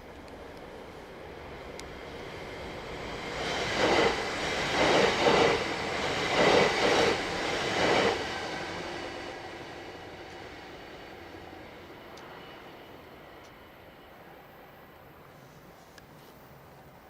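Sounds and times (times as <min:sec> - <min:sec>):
train wheels clattering over rails: 0:02.9 - 0:09.4.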